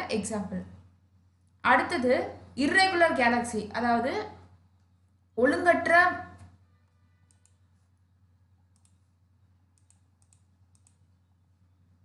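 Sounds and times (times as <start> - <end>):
low electrical hum: 0.0 - 12.0
faint sharp clicks: 8.7 - 9.0, 9.8 - 11.0.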